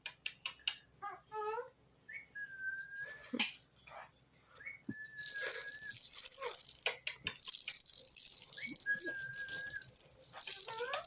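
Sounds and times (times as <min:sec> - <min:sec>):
high rattling clatter: 0:05.0 - 0:11.0
parrot whistling: 0:08.2 - 0:11.0.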